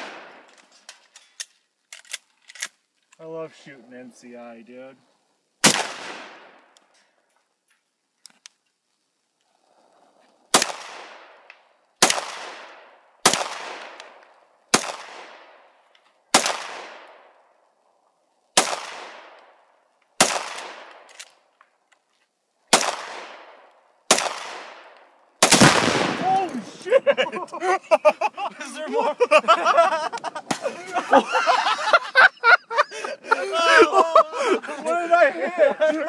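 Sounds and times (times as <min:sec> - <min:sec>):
gunshots with echo: 0:25.4 - 0:26.4.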